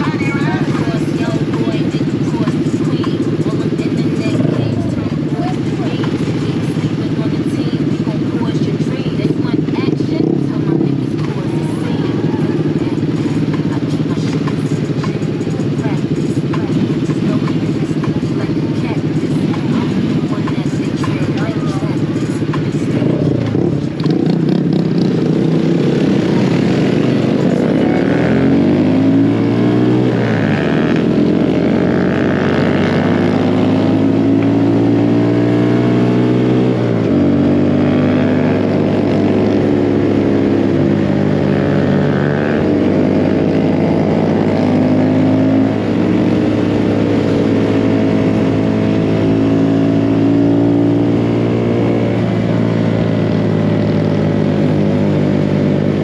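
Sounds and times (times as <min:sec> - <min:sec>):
mini bike engine revving: 0:00.0 - 0:56.0.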